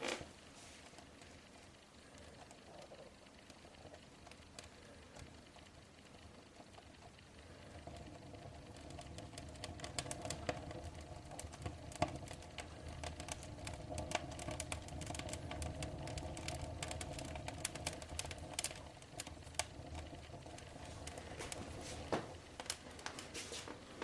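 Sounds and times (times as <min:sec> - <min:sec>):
fire crackling and popping: 0:00.0 - 0:24.0
steady low hum: 0:00.0 - 0:24.0.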